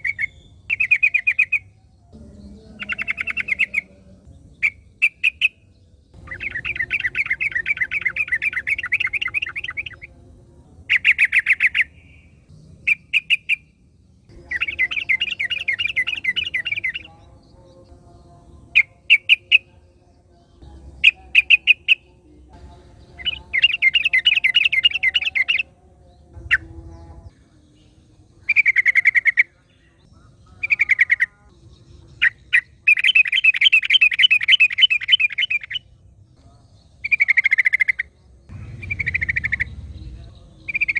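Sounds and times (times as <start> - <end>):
bird chattering trills: 0.0 - 5.6, 6.2 - 10.1, 10.8 - 13.7, 14.3 - 17.2, 23.0 - 25.6, 28.4 - 29.5, 37.0 - 40.9
sharp bird notes: 6.2 - 10.1, 37.0 - 40.9.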